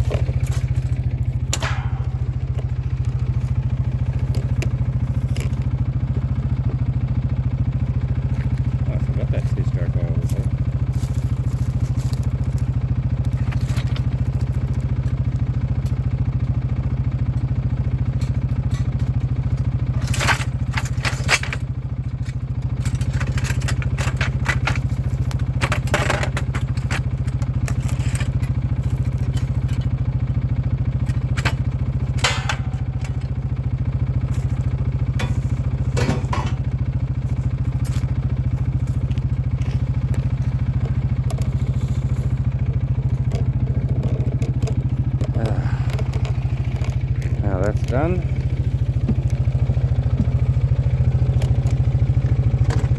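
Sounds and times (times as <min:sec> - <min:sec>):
small engine running: 0:00.0 - 0:52.9
clattering knocks: 0:32.1 - 0:33.4, 0:35.1 - 0:36.7.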